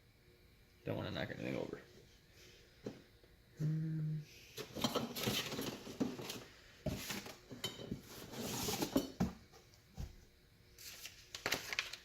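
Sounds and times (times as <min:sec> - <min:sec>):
cardboard rustling: 0:04.9 - 0:07.4, 0:08.0 - 0:09.4.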